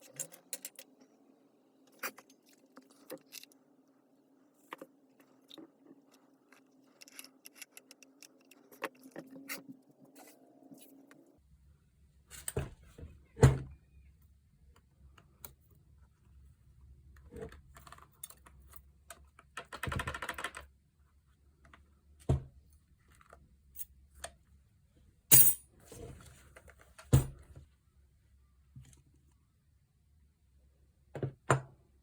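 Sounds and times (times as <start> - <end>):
tools clicking and knocking: 5.6 - 9.6.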